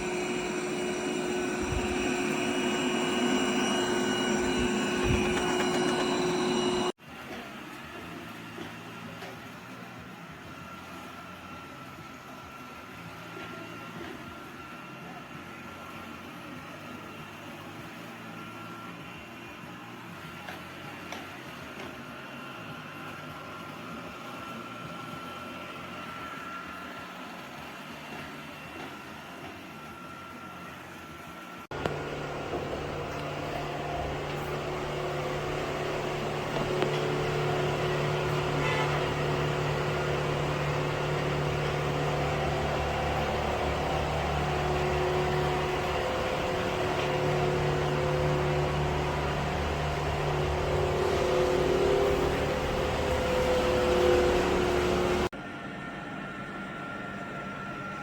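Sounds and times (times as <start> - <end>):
louder low hum: 0.0 - 7.0, 31.7 - 55.3
robot vacuum whirring: 0.0 - 7.0, 31.7 - 55.3.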